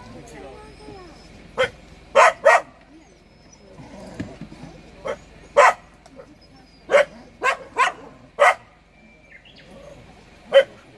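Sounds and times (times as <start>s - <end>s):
puppy barking: 1.6s - 2.8s, 5.0s - 8.8s, 10.5s - 10.8s.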